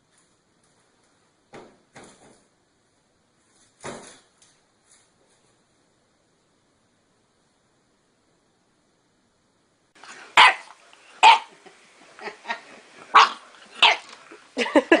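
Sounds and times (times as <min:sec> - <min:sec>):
dog barking: 0:10.0 - 0:11.6, 0:12.2 - 0:14.2.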